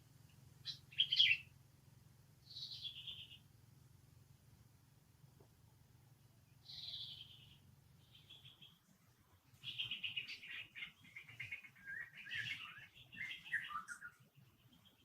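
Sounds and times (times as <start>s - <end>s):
high-pitched chirping calls: 0.6s - 1.4s, 2.5s - 3.4s.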